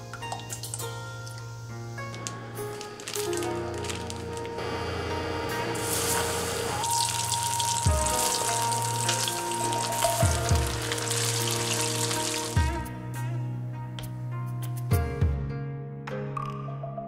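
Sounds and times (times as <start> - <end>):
background music: 0.0 - 17.0
chicken deep-frying in oil: 2.2 - 12.7.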